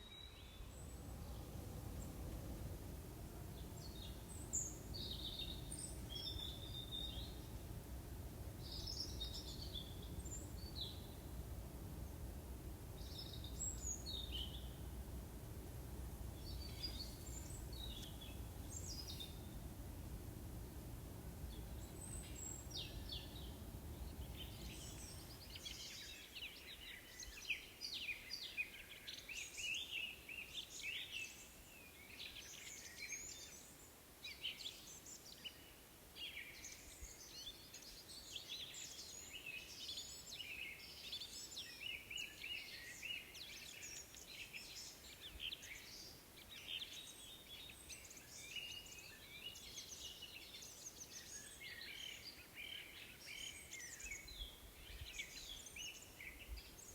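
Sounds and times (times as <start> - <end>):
songbirds chirping and trilling: 0.0 - 56.9.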